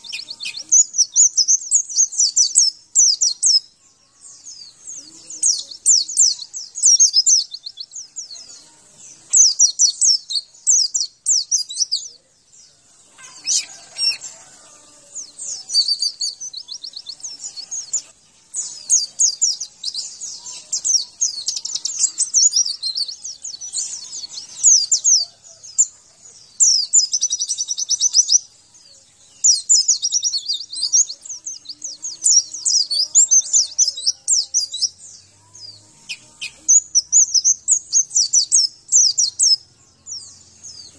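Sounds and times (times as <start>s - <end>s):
bird twittering trills: 0.0s - 40.9s.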